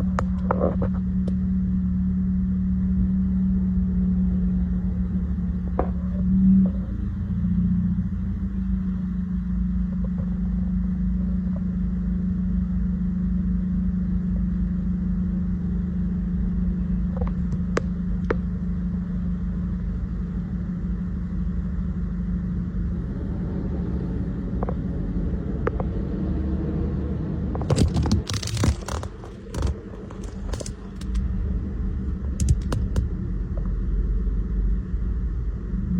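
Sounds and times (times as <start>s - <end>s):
engine idling: 0.0s - 35.9s
loud rattling clatter: 27.6s - 31.4s, 32.0s - 33.2s.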